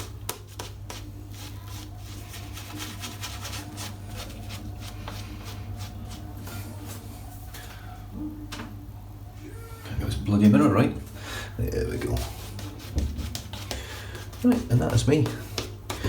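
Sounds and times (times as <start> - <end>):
shaving brush rubbing on scalp: 0.0 - 7.1, 11.8 - 15.8.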